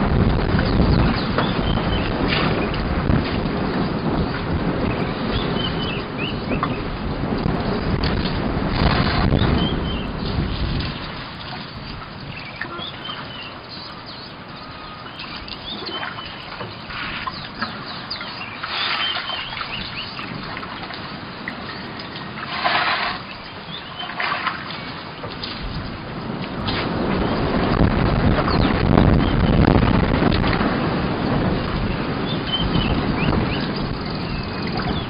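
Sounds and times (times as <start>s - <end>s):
small birds chirping: 11.6s - 20.4s, 23.2s - 25.2s, 32.2s - 35.0s.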